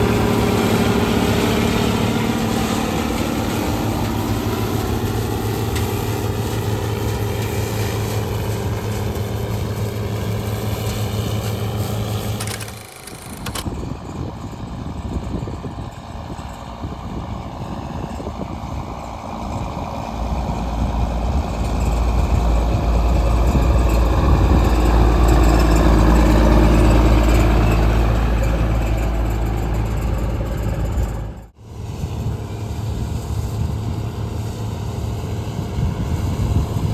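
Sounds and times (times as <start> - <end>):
harvest machinery engine rumbling: 0.0 - 36.9.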